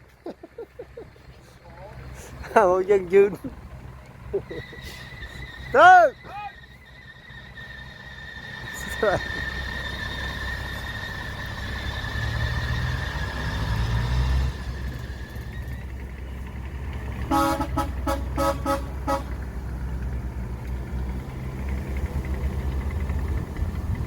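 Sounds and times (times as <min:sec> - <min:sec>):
diesel engine rumble: 0:00.0 - 0:24.0
machine horn short blasts: 0:17.2 - 0:19.4.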